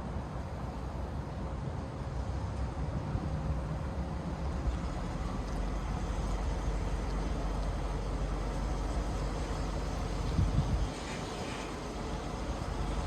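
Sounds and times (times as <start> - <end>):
road and wind noise: 0.0 - 13.0
truck diesel engine rumbling: 5.2 - 13.0.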